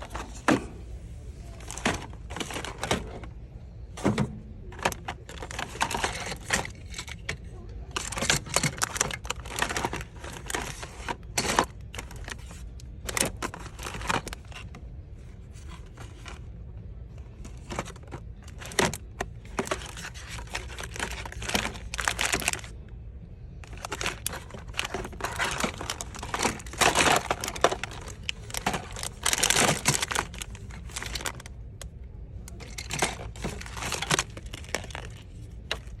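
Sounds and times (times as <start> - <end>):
crinkling and rustling handling noise: 0.0 - 36.0.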